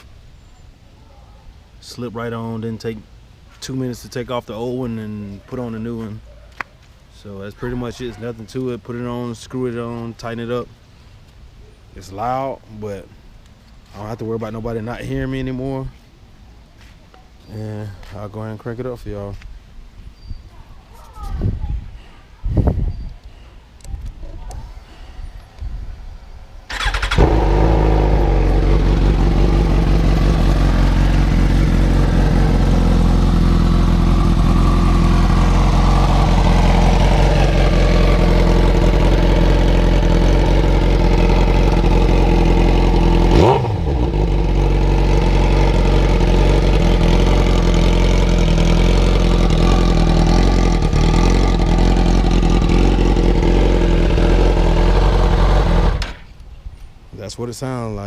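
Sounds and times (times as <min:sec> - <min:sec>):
motorcycle engine starting and idling: 0:26.7 - 0:56.4.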